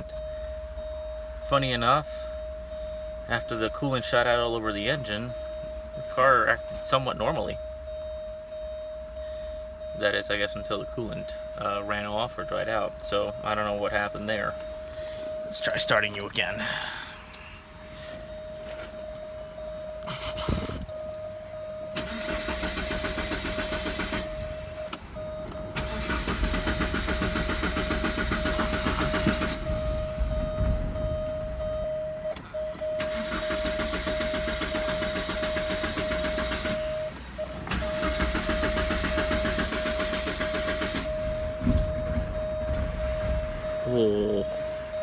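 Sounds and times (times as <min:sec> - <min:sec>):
steady high-pitched tone: 0:00.0 - 0:22.1, 0:39.2 - 0:45.0
starter cranking engine: 0:21.9 - 0:24.6, 0:25.6 - 0:29.8, 0:33.0 - 0:41.4.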